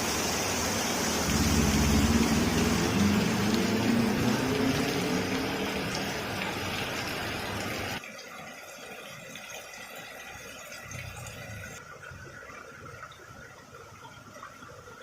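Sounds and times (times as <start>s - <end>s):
rain falling: 0.0s - 8.0s.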